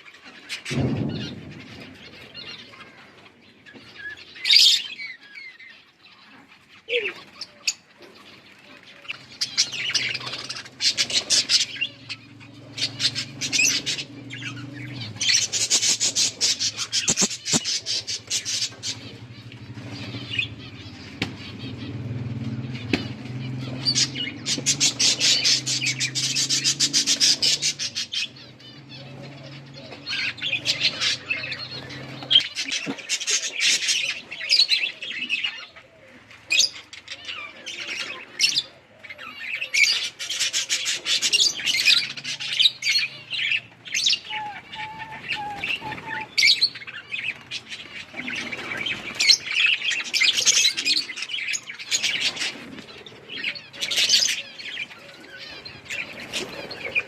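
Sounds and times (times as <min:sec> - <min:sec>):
budgerigars chirping: 0:07.2 - 0:35.9, 0:36.5 - 0:57.0
low motor hum: 0:09.5 - 0:32.5.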